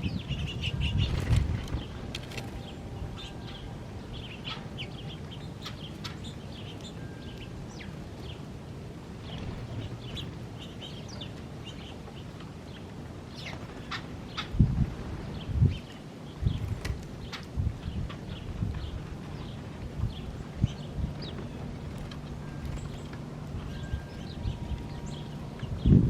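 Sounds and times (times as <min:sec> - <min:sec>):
small birds chirping: 0:00.0 - 0:08.5, 0:09.2 - 0:26.0
low steady rumble: 0:17.6 - 0:26.0.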